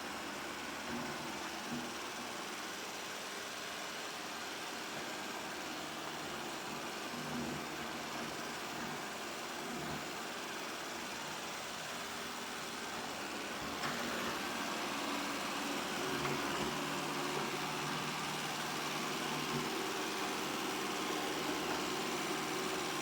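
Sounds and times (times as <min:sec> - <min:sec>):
robot vacuum whirring: 0:13.0 - 0:23.0.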